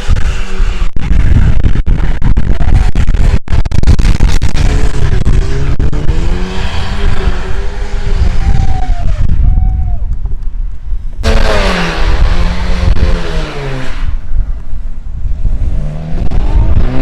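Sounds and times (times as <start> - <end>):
car engine revving: 2.0 - 9.2, 11.2 - 14.3, 15.4 - 17.0.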